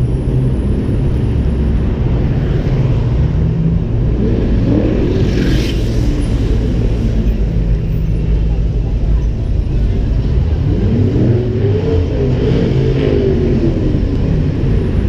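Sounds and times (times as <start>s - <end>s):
passing motorcycle whine: 0.0s - 9.0s
car engine and exhaust rumble: 0.0s - 15.0s
road noise: 0.0s - 15.0s.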